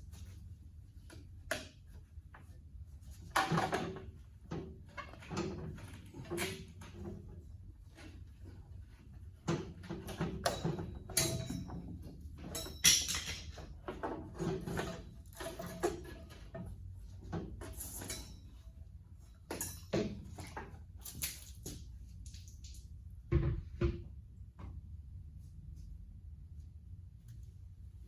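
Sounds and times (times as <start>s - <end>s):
hand tools clanking on metal: 10.1s - 16.6s.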